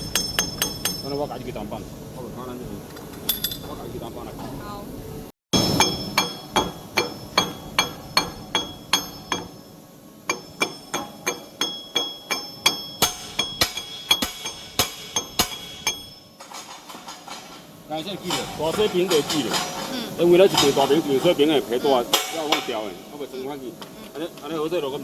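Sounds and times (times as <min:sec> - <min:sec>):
hammer striking metal: 0:00.0 - 0:01.4, 0:05.6 - 0:17.6, 0:18.2 - 0:19.9, 0:22.1 - 0:23.2.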